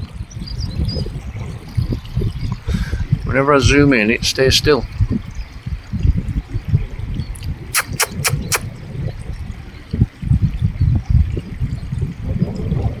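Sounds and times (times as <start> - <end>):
wind buffeting microphone: 0.0 - 13.0
quick clicks: 7.8 - 8.6.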